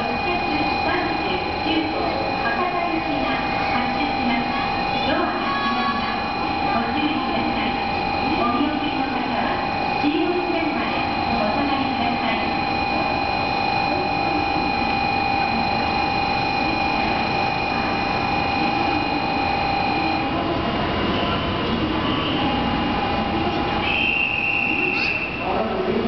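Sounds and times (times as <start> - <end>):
steady tone: 0.0 - 20.4.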